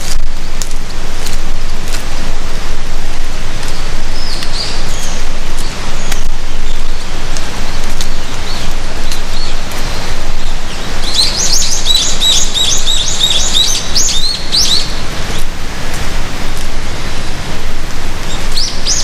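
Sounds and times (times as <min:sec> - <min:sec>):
loud steady rushing noise: 0:00.0 - 0:19.0
songbird chirping: 0:03.8 - 0:17.4, 0:18.2 - 0:19.0.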